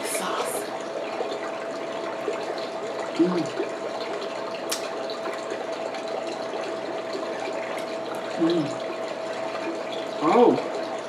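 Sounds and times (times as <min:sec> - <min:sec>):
faint hum: 0:00.0 - 0:11.0
small click: 0:04.7 - 0:04.9
person humming mm: 0:08.4 - 0:08.8.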